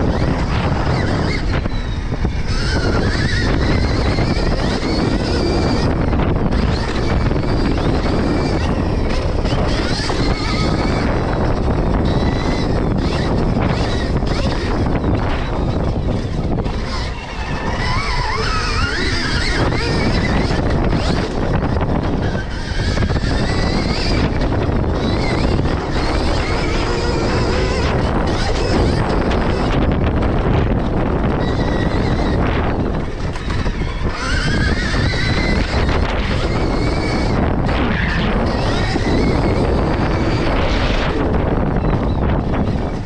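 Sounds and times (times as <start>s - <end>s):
electric motorbike motor whining: 0.0s - 43.0s
wind and track noise rumble: 0.0s - 43.0s.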